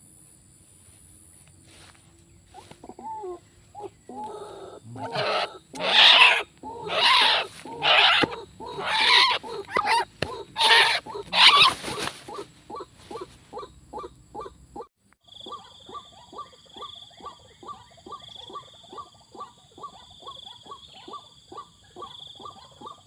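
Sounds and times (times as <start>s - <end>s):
soft animal calls: 2.5s - 23.0s
animal crying harshly: 3.0s - 14.5s.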